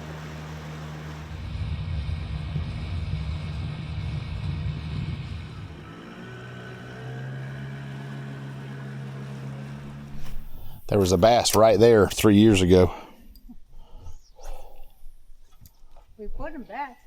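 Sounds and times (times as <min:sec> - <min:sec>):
boat motor droning: 0:00.0 - 0:12.2.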